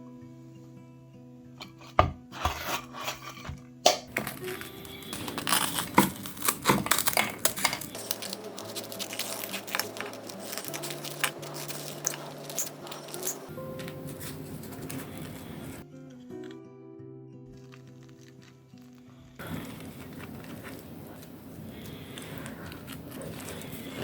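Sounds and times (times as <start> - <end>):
background music with held notes: 0.0 - 19.0
crisp bread crunching: 4.1 - 15.8, 17.5 - 24.0.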